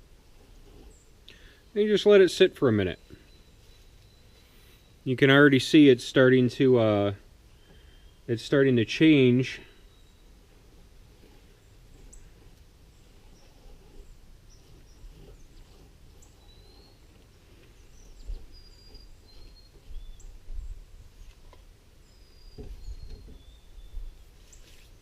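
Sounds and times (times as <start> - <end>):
small birds chirping: 0.4 - 5.9, 6.6 - 25.0
soft thumps: 22.5 - 23.5.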